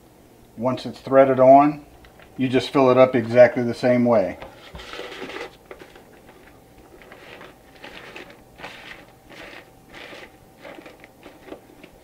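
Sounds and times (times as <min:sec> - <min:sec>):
faint steady hum: 0:00.0 - 0:12.0
sausage casing rustling and crinkling: 0:04.5 - 0:12.0.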